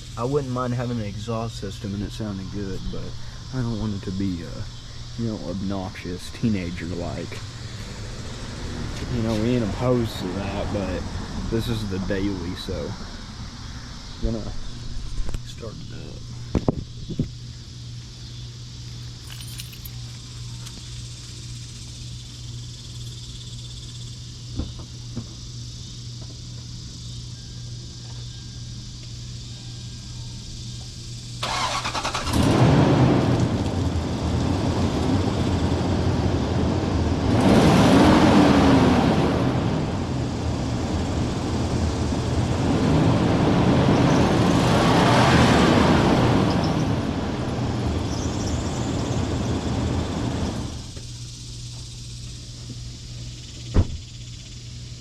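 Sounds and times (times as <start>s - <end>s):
steady low hum: 0.0s - 31.5s, 32.2s - 55.0s
man talking: 0.2s - 7.5s, 9.0s - 13.0s, 14.2s - 14.6s, 15.4s - 16.3s
car engine starting and revving: 3.6s - 13.4s, 31.4s - 51.0s.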